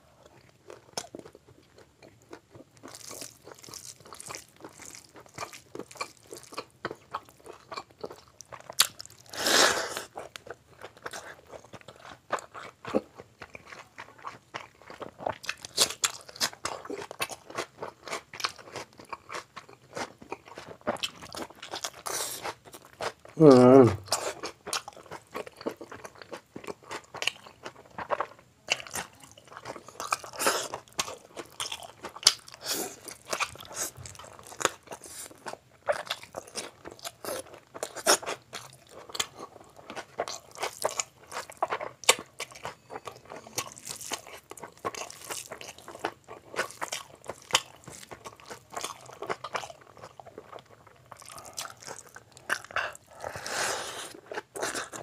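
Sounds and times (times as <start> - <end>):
wet chewing and mouth smacks: 0.3 - 9.4, 24.0 - 55.0.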